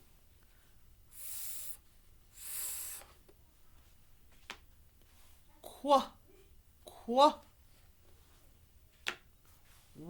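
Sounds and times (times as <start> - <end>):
woman making hissing sound: 1.1 - 3.2.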